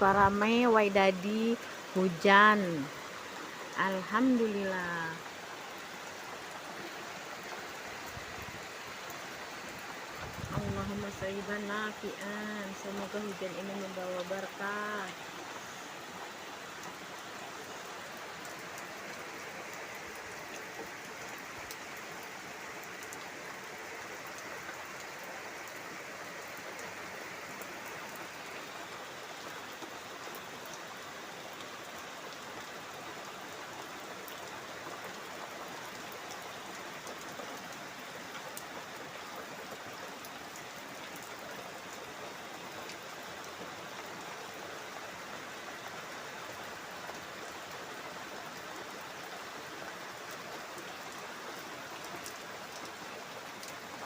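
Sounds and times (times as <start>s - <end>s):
rain drops ticking: 0.0s - 54.0s
steady rain hiss: 0.0s - 54.0s.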